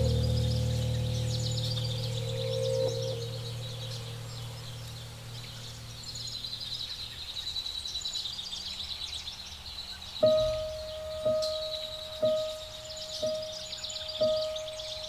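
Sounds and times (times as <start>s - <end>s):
low steady hum: 0.0s - 6.8s
dense high chirping chorus: 0.0s - 7.0s, 10.2s - 15.0s.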